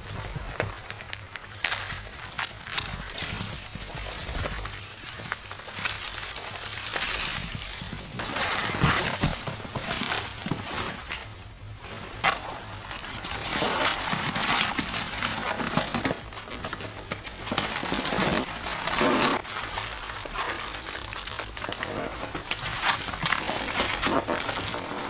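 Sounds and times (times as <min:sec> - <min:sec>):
crunching and crinkling: 0:00.0 - 0:25.0.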